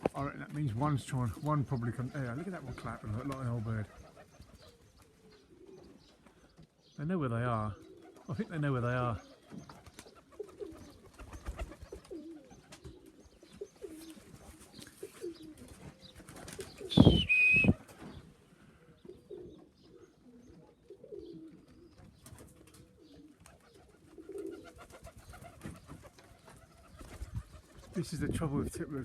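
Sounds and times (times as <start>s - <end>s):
pigeons cooing: 0.0s - 29.0s
high falling whistle: 16.9s - 17.8s.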